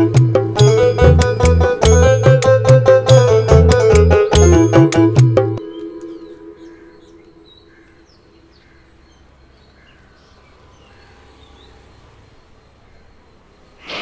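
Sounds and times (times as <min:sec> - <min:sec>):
held low chord: 0:00.0 - 0:07.8
open-air background noise: 0:00.0 - 0:14.0
faint birds chirping: 0:05.6 - 0:14.0.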